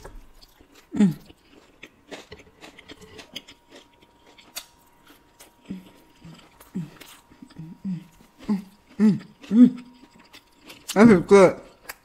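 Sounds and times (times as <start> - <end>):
crunchy chewing: 0.0 - 12.0
person humming: 5.7 - 10.0.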